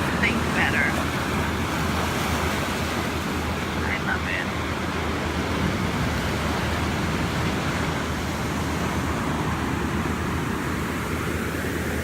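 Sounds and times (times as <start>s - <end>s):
ocean surf rushing: 0.0s - 12.0s
wind on microphone: 5.2s - 11.3s.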